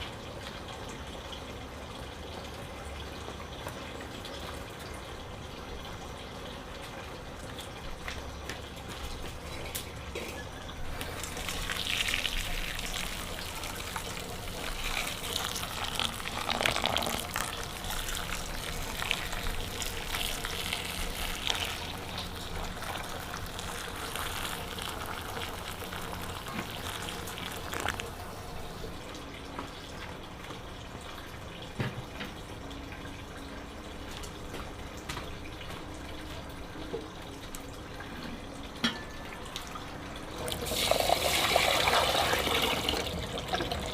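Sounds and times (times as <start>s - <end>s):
water running and splashing: 10.7s - 31.5s, 40.4s - 43.9s.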